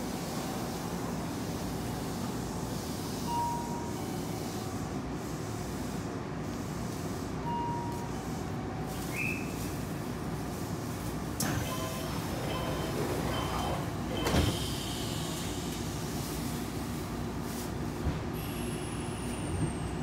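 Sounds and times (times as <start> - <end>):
train rumbling: 9.8 - 20.0.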